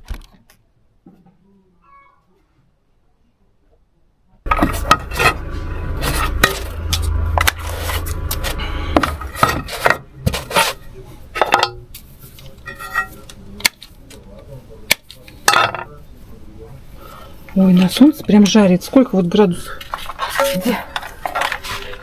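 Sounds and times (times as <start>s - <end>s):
hard objects clattering and clinking: 4.5s - 16.0s, 19.7s - 22.0s.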